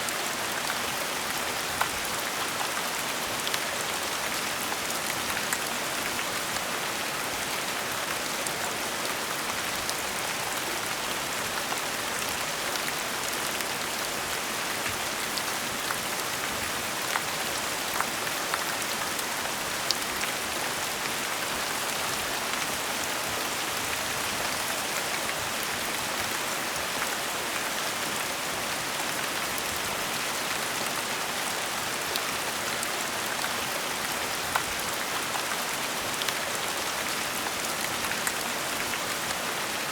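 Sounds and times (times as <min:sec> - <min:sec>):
gentle rain falling: 0:00.0 - 0:39.9.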